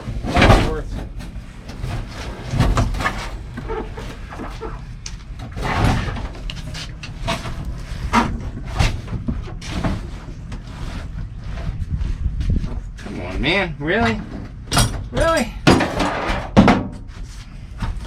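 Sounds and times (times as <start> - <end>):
knocks and clunks: 0.0 - 11.8, 14.0 - 17.1
scraping and rustling: 0.0 - 13.4.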